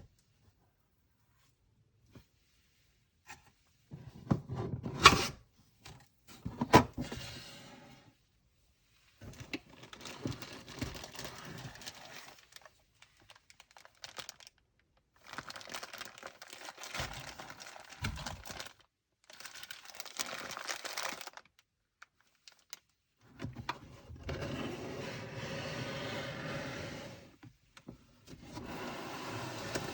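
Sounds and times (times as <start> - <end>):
packaging crinkling: 9.7 - 14.6, 15.2 - 21.6.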